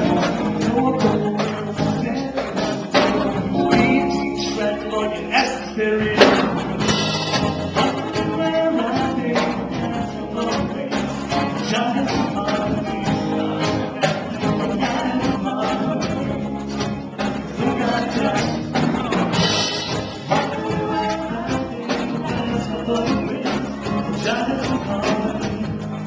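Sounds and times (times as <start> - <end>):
live band playing: 0.0 - 26.0
person singing: 0.0 - 26.0
percussion hits: 6.0 - 25.7.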